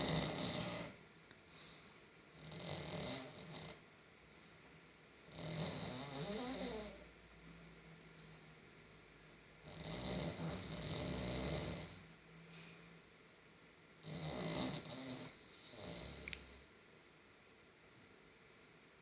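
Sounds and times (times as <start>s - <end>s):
dog snoring: 0.0s - 1.0s, 2.3s - 3.8s, 5.2s - 7.1s, 9.6s - 12.1s, 14.0s - 16.6s.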